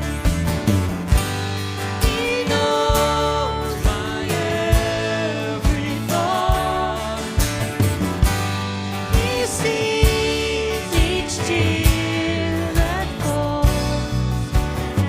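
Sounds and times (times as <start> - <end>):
worship band playing: 0.0 - 15.0
person singing: 2.0 - 7.8, 9.0 - 15.0.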